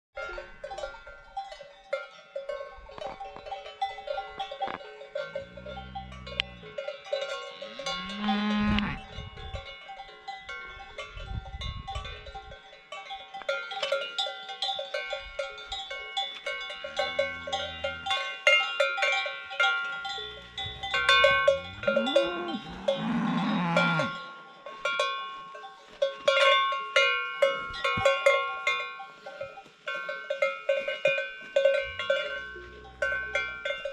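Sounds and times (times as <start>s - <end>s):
cowbells clanking: 0.2s - 33.9s
cows mooing: 4.7s - 9.1s, 16.9s - 18.3s, 20.0s - 24.2s.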